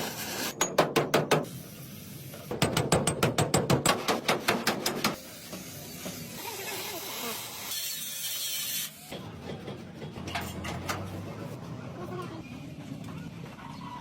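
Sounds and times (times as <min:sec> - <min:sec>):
hiss: 0:01.4 - 0:02.6, 0:04.3 - 0:09.1.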